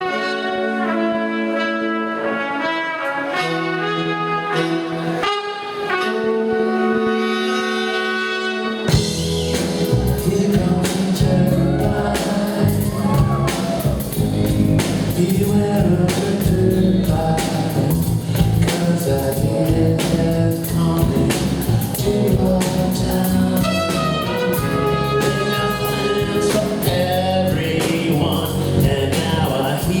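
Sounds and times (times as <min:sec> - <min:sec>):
horn section sustained chord: 0:00.0 - 0:09.4, 0:23.6 - 0:26.8
live rock band with drums: 0:03.3 - 0:30.0
bass guitar: 0:08.7 - 0:30.0.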